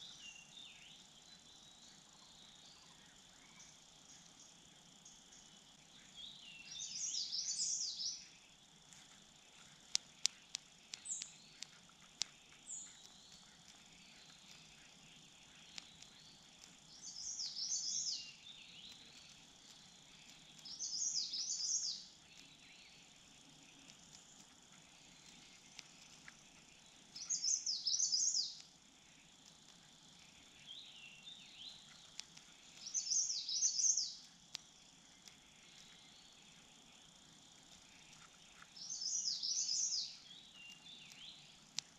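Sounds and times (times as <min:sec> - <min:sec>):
faint steady high hum: 0:00.0 - 0:41.9
songbird warbling: 0:06.0 - 0:08.4, 0:09.6 - 0:28.6, 0:30.2 - 0:34.3, 0:37.9 - 0:41.6
sharp clicks: 0:09.8 - 0:17.5, 0:23.6 - 0:26.5, 0:31.9 - 0:33.0, 0:34.0 - 0:35.5, 0:40.7 - 0:41.9.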